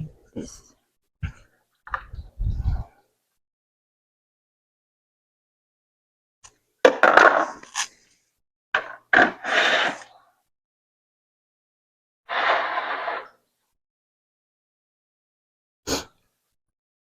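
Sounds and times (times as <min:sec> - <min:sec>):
objects knocking and scraping: 0:06.9 - 0:07.8.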